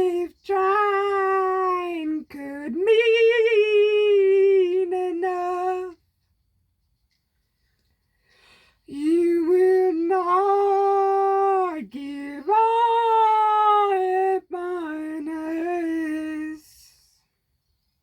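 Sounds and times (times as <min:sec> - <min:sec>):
person singing long wordless notes: 0:00.0 - 0:06.0, 0:08.9 - 0:16.9.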